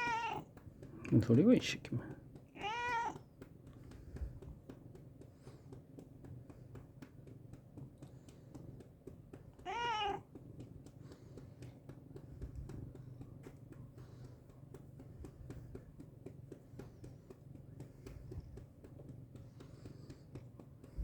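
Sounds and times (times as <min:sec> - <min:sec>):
cat meowing: 0:00.0 - 0:00.4, 0:02.6 - 0:03.2, 0:09.6 - 0:10.2
faint ticks: 0:00.0 - 0:21.0.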